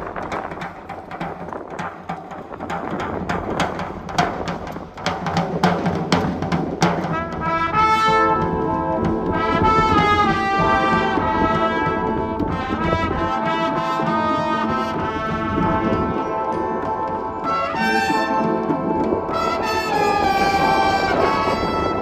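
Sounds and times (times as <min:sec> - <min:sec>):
drum strokes: 0:00.0 - 0:22.0
brass sustained chords: 0:07.2 - 0:22.0.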